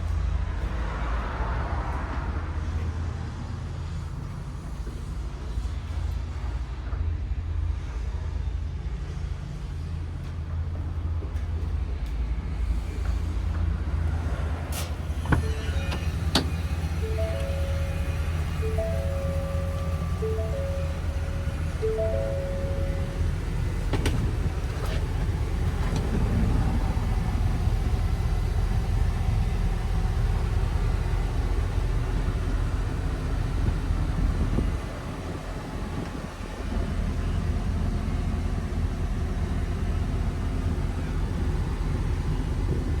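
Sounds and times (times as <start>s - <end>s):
truck engine rumbling: 10.0s - 43.0s.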